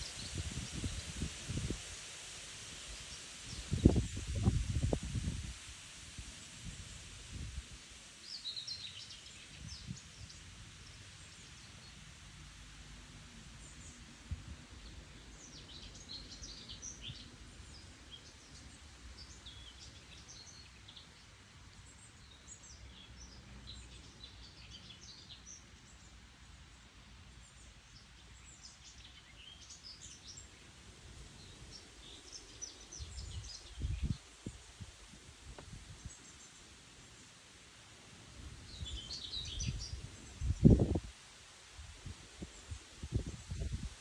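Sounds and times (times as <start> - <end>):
small birds chirping: 8.1 - 12.2, 13.6 - 34.8, 35.5 - 41.2.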